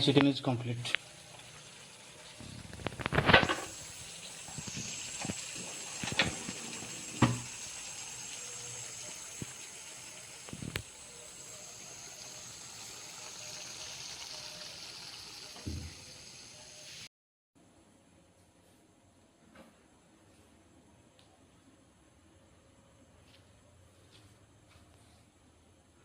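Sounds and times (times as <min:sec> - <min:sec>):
curry sizzling in a pan: 0:00.1 - 0:17.1.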